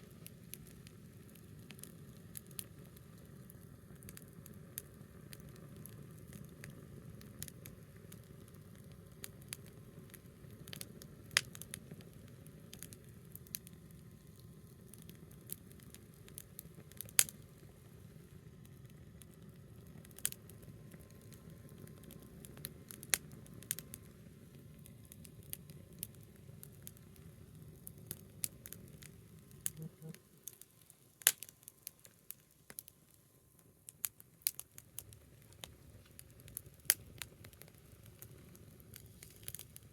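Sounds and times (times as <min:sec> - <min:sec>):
burning wood popping: 0:00.0 - 0:39.9
campfire crackling: 0:00.0 - 0:39.9.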